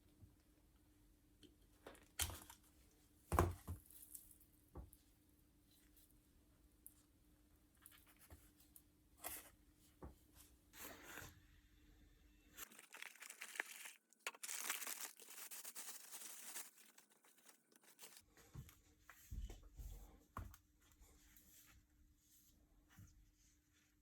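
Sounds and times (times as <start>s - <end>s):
rustling tearing-like scraping: 12.6s - 18.2s.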